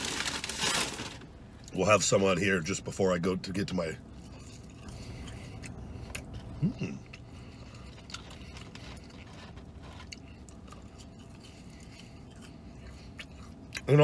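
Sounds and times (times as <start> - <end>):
paper carton crackling: 0.0 - 1.2
man chewing crispy fries: 0.0 - 1.9, 3.5 - 14.0
low steady hum: 0.0 - 14.0.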